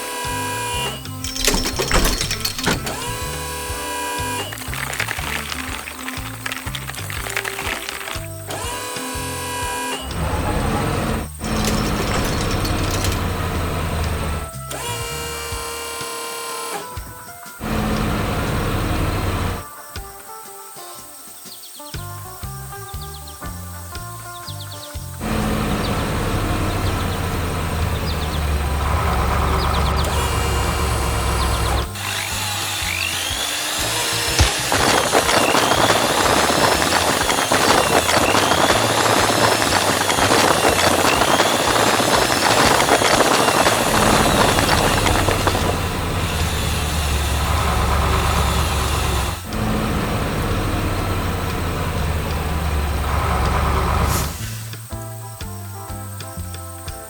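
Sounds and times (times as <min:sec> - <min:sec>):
grinding drill-like noise: 0:00.0 - 0:17.0, 0:17.6 - 0:19.6, 0:25.2 - 0:54.8
background music: 0:00.0 - 0:38.7, 0:50.4 - 0:57.0
low engine rumble: 0:00.4 - 0:15.5, 0:25.2 - 0:54.9.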